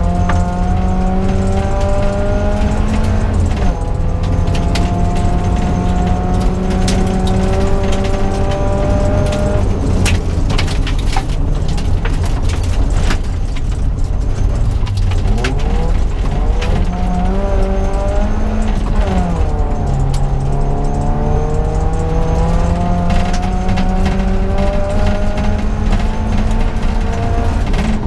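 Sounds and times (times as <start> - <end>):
car engine pulling hard: 0.0 - 28.0.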